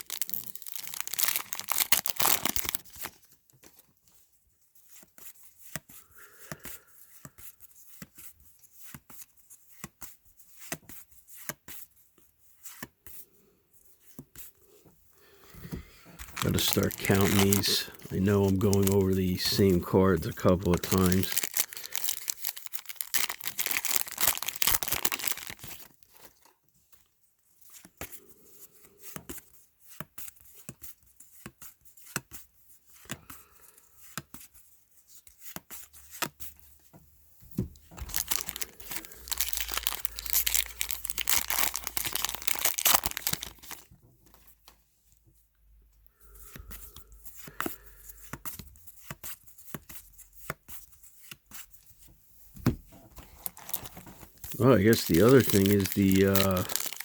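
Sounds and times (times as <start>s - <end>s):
card pack wrappers tearing: 0.0s - 3.2s, 16.2s - 26.3s, 37.9s - 43.9s, 53.2s - 57.0s.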